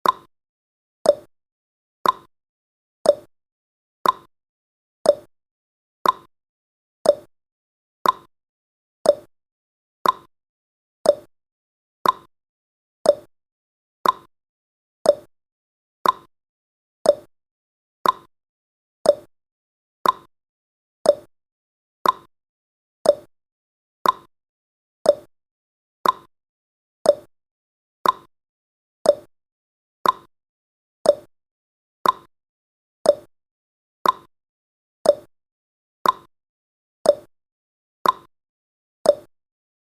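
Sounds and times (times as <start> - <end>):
clock ticking: 2.0 - 2.3, 4.0 - 4.3, 6.0 - 6.3, 8.0 - 8.3, 10.0 - 10.3, 12.0 - 12.3, 14.0 - 14.3, 16.0 - 16.3, 18.0 - 18.3, 20.0 - 20.3, 21.1 - 21.3, 22.0 - 22.3, 24.0 - 24.3, 26.0 - 26.3, 28.0 - 28.3, 29.1 - 29.3, 30.0 - 30.3, 31.1 - 31.3, 32.0 - 32.3, 33.1 - 33.3, 34.0 - 34.3, 35.1 - 35.3, 36.0 - 36.3, 38.0 - 38.3.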